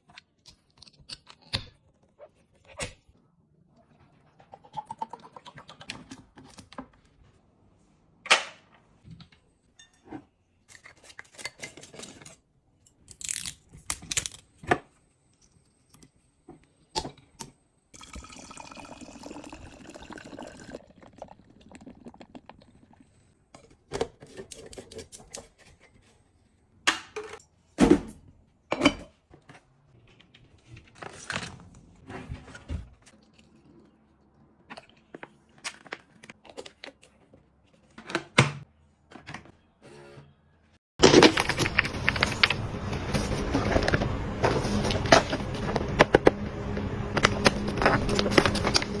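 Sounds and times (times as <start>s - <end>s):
household objects clicking and knocking: 41.0s - 49.0s.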